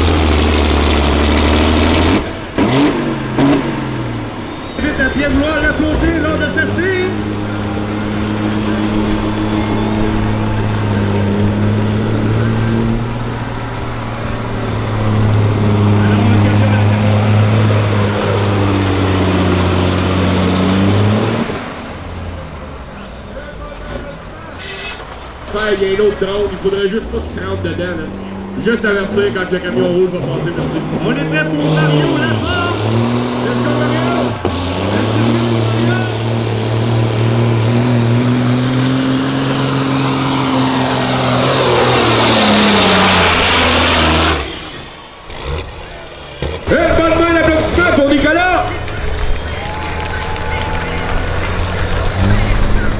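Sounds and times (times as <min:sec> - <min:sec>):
diesel truck engine running hard: 0:00.0 - 0:52.9.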